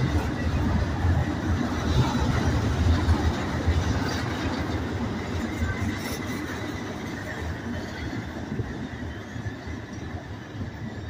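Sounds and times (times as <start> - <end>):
steel wheels rumbling on rail: 0.0 - 11.0
train cars rattling: 0.0 - 11.0.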